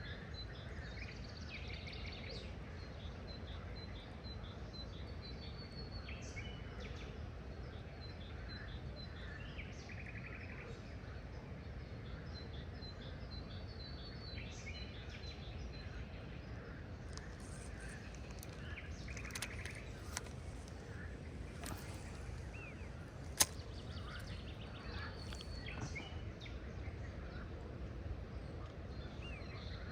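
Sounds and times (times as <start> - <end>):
birds chirping: 14.6 - 29.9
sharp clicks: 17.0 - 25.8.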